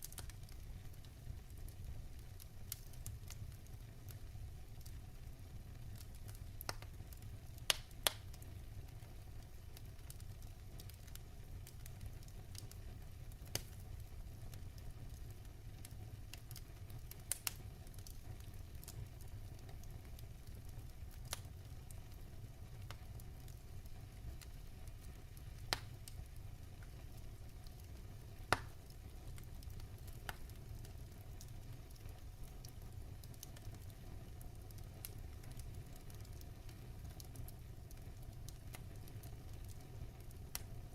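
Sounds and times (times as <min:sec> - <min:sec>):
burning logs rumble: 0:00.0 - 0:40.9
fire sharp pops: 0:06.0 - 0:08.4, 0:13.4 - 0:13.8, 0:24.4 - 0:34.0.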